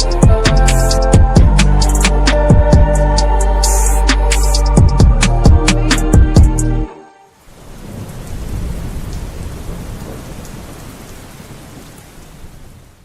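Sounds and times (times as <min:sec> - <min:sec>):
song drum hits and chord: 0:00.0 - 0:06.7
rain: 0:07.3 - 0:13.0
low rumble of thunder: 0:07.6 - 0:11.0.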